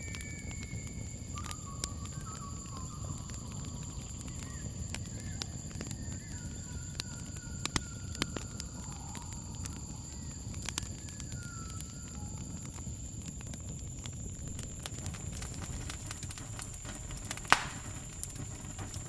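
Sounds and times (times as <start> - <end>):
faint wavering calls: 0.0 - 13.4, 14.6 - 19.0
campfire crackling: 0.0 - 19.0
insect trill: 0.0 - 19.0.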